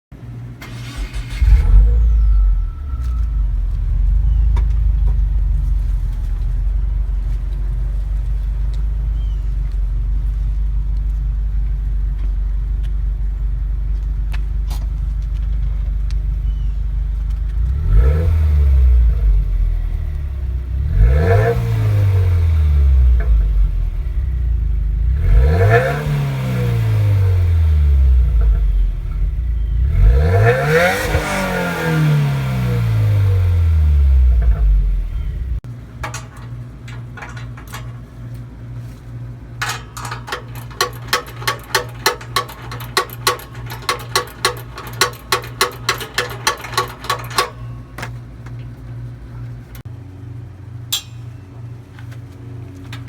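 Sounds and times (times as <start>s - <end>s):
car engine starting and idling: 0.1s - 50.8s
car engine revving: 0.6s - 8.4s, 17.5s - 36.2s.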